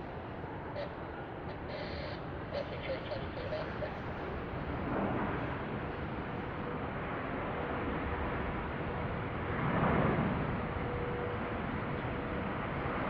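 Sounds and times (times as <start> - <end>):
faint whine: 0.0 - 9.4.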